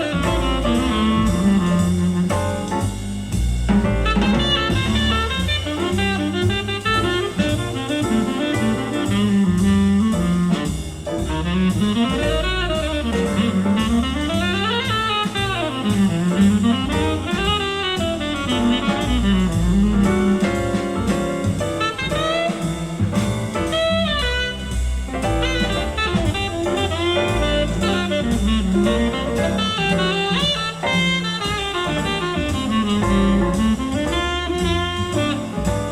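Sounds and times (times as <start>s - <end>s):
jazz over loudspeakers: 0.0s - 35.9s.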